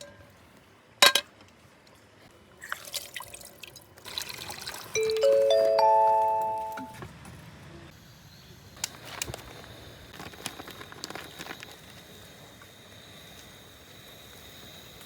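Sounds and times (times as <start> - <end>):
thin high-pitched tone: 5.0 - 7.0.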